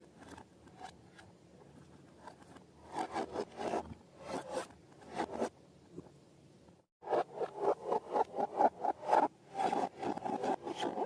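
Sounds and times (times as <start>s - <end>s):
slime materials scraping and rubbing: 7.1s - 11.0s.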